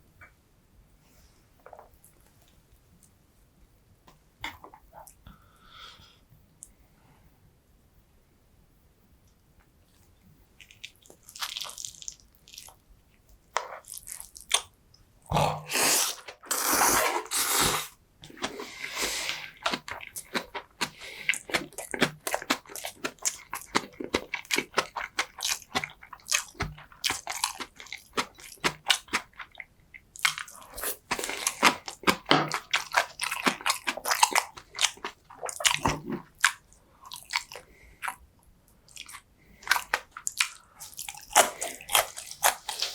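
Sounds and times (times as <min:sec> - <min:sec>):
biting and chewing: 0:19.2 - 0:29.6, 0:30.2 - 0:38.2, 0:38.9 - 0:42.9.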